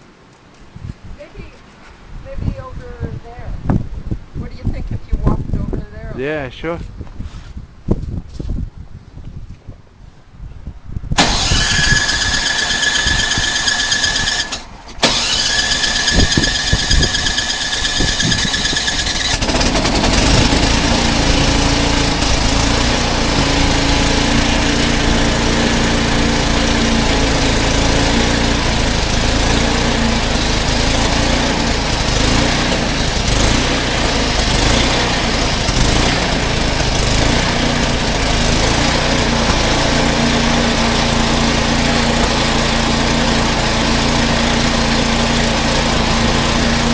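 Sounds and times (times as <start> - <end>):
electric starter whine: 11.2 - 46.9
snowblower engine running: 11.2 - 46.9.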